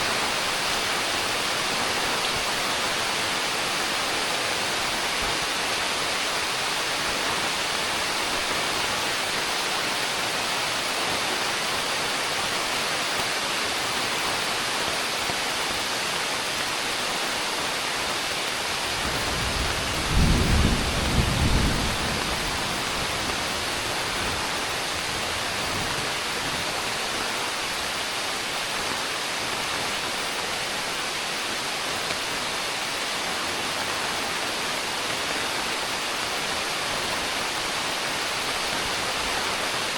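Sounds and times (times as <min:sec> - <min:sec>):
heavy rain hissing: 0:00.0 - 0:39.9
thunder rumble: 0:18.8 - 0:26.1.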